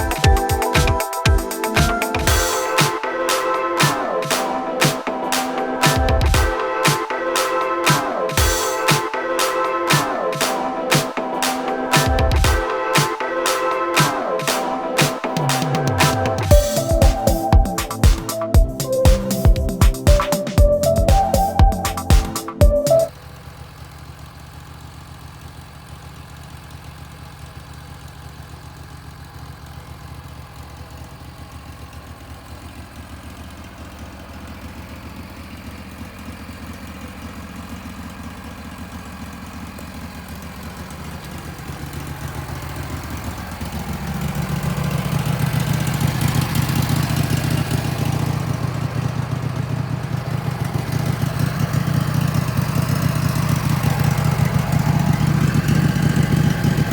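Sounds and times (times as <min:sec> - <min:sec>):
sawmill engine running: 0:00.0 - 0:56.9.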